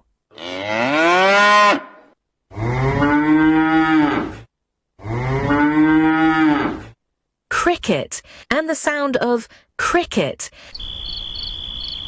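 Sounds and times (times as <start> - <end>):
cow mooing: 0.3 - 4.4.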